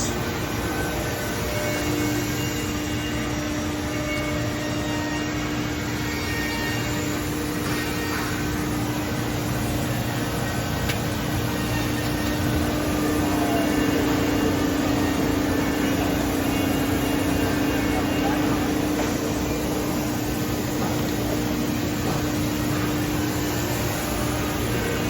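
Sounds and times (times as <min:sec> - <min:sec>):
cnc router humming: 0:00.0 - 0:25.0.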